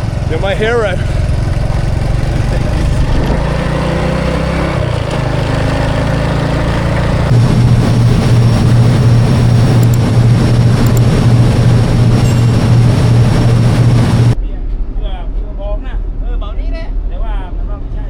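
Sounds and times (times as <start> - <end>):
engine running: 0.0 - 14.4
low drone: 0.0 - 14.4.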